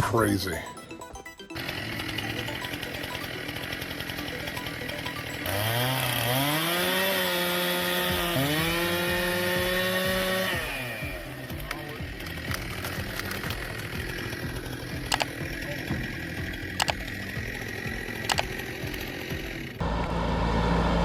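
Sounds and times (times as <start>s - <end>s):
chainsaw revving: 5.5s - 19.7s.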